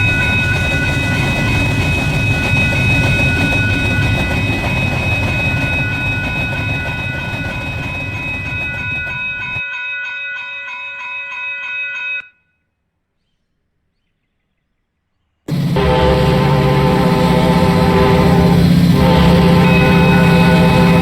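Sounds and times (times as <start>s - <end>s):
high-pitched squeal: 0.0s - 9.6s, 15.5s - 21.0s
train rumbling on rails: 0.0s - 9.6s, 15.5s - 21.0s.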